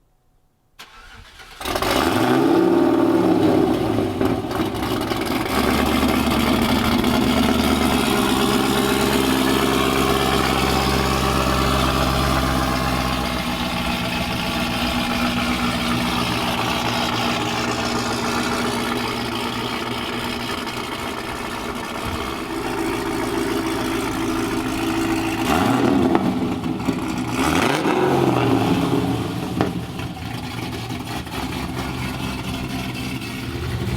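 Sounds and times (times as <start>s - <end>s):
car engine revving: 1.2s - 33.9s.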